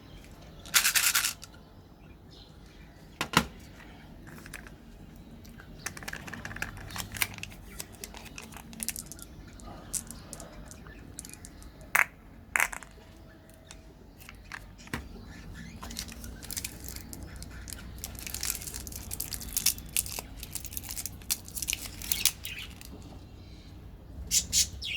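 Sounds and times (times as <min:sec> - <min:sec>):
crunchy candy being chewed: 0:16.0 - 0:22.8
candy snapping: 0:16.4 - 0:22.9.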